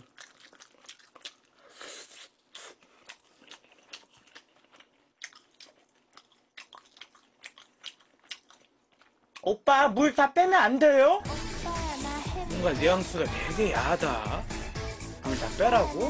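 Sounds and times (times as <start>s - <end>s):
chewing crispy fried food: 0.0s - 10.0s.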